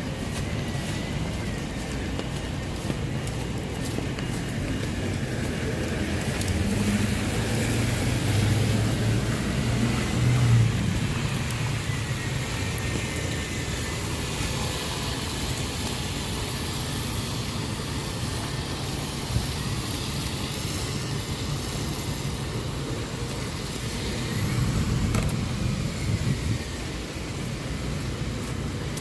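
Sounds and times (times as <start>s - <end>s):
road traffic rumble: 0.0s - 29.0s
vehicle passing close: 5.7s - 12.3s.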